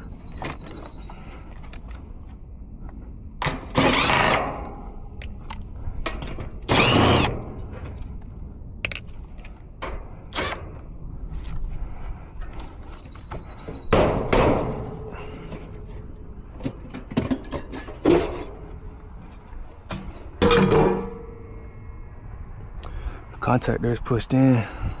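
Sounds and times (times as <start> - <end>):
cordless drill whirring: 3.7 - 4.4, 6.7 - 7.4, 10.3 - 10.6.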